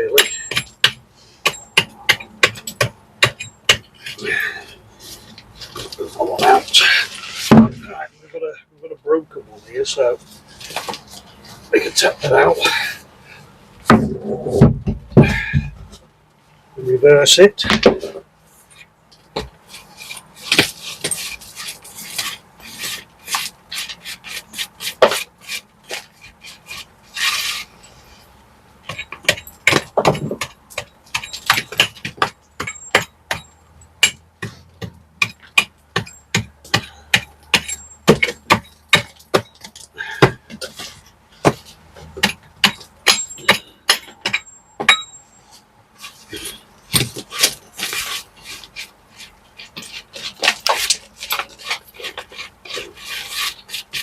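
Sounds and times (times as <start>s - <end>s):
hand tools tapping brick: 0.0s - 4.2s, 28.8s - 45.2s
tools scraping mortar: 0.0s - 8.0s, 17.8s - 54.0s.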